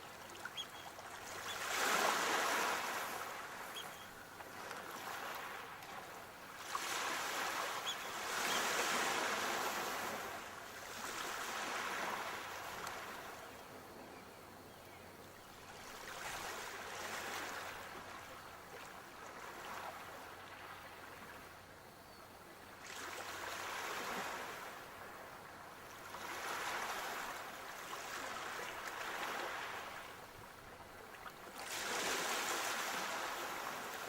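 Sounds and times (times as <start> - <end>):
sea waves breaking: 0.0 - 13.3, 26.0 - 30.3, 31.2 - 34.0.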